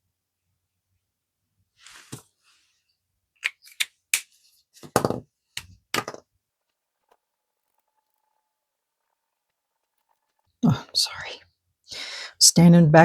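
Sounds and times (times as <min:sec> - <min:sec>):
objects clicking on hard surface: 0:03.4 - 0:10.6.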